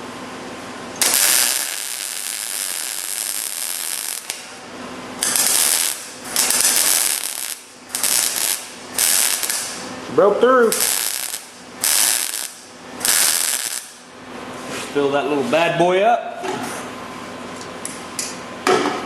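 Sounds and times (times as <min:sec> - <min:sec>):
arc welder crackling: 0:00.8 - 0:14.3.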